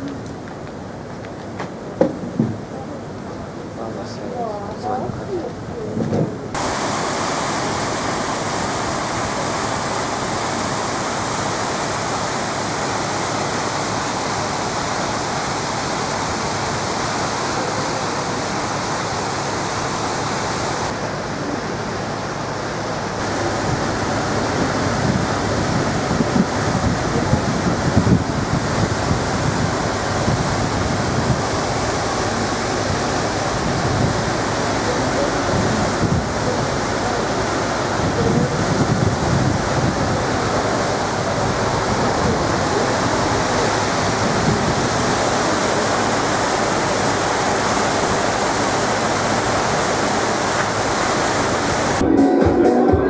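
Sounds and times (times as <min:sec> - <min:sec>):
rushing water: 0:06.4 - 0:52.0
wind buffeting microphone: 0:23.2 - 0:46.5.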